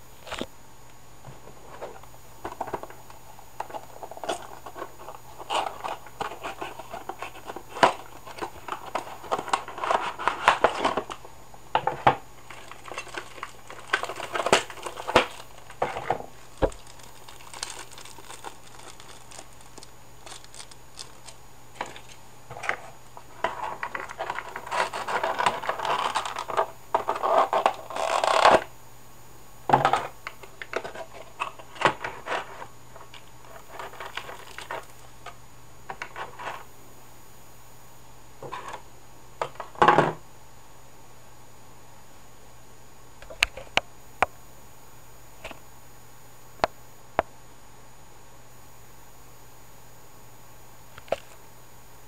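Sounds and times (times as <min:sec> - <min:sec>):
packaging crinkling and tearing: 0:12.4 - 0:22.2, 0:23.6 - 0:28.6, 0:33.5 - 0:35.1.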